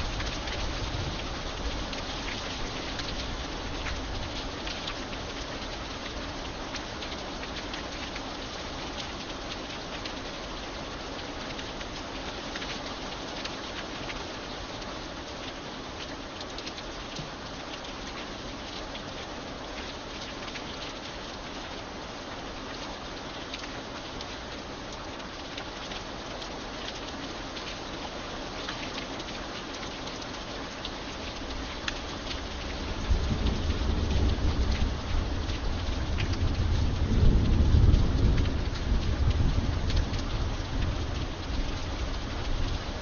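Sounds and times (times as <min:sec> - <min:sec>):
raindrops ticking: 0:00.0 - 0:43.0
steady rain: 0:00.0 - 0:43.0
low rumble of thunder: 0:32.4 - 0:43.0.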